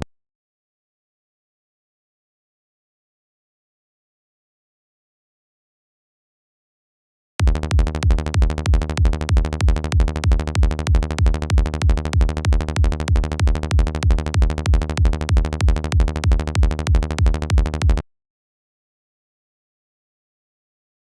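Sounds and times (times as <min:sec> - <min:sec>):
rolling synth bass line: 0:07.4 - 0:18.0
synthesized kick drum: 0:07.4 - 0:18.0.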